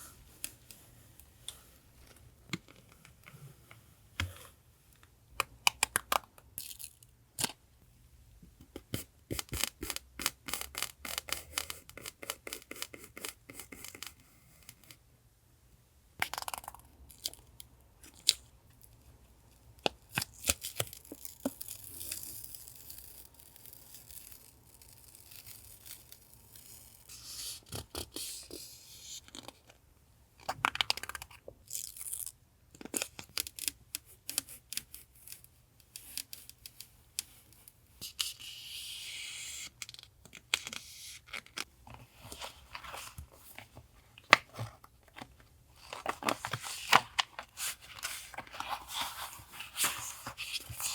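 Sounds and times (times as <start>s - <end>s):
paper rustling: 41.9s - 50.9s.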